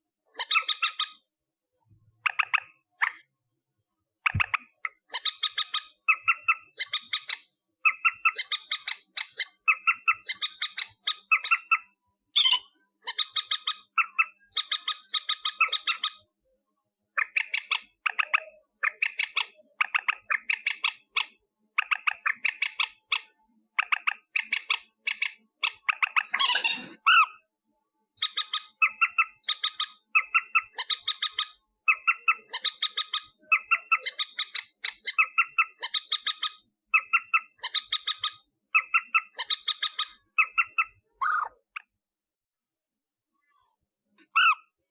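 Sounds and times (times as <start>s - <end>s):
rail bird harsh clicking calls: 0.4s - 1.2s, 4.2s - 16.2s, 17.2s - 27.3s, 28.2s - 41.9s
rough sweeping bird call: 26.3s - 27.3s.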